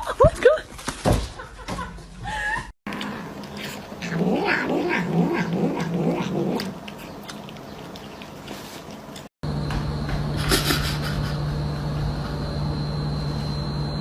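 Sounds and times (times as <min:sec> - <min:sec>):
cat yowling: 0:04.0 - 0:06.7.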